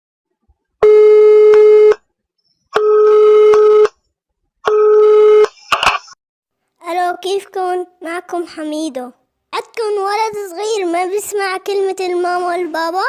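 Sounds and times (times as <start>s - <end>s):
telephone call tone beeps: 0.8s - 2.0s, 2.8s - 3.9s, 4.7s - 5.7s.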